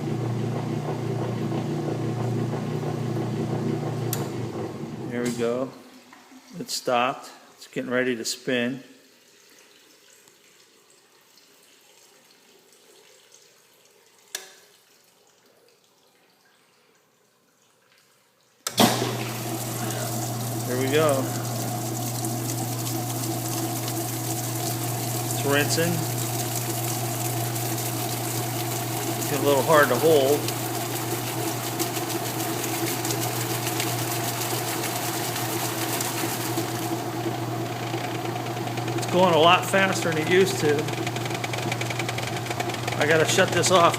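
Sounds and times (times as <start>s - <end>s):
washing machine spinning: 0.0s - 5.2s, 18.7s - 43.9s
faint trickling water: 5.4s - 18.7s.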